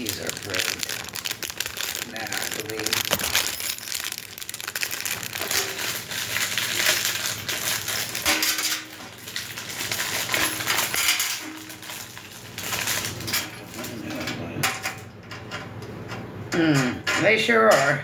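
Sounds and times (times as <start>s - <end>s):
packaging crinkling: 0.0s - 8.4s
metal parts clinking and rattling: 0.0s - 15.1s.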